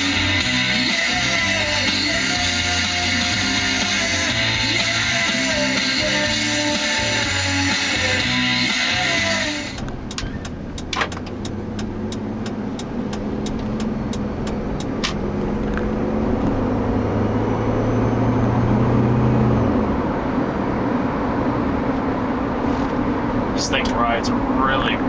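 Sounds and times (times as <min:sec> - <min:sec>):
car engine accelerating: 0:00.0 - 0:25.0
regular ticking: 0:00.7 - 0:15.4.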